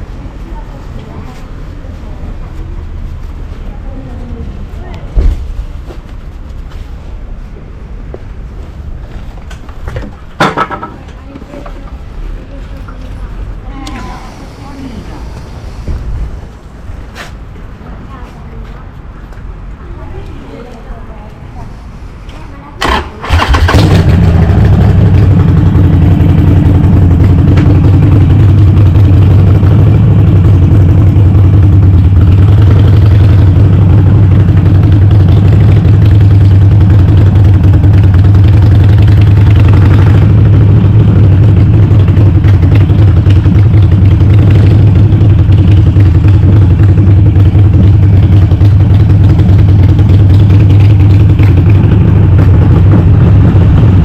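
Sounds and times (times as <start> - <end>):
motorcycle engine starting and idling: 22.8 - 54.0.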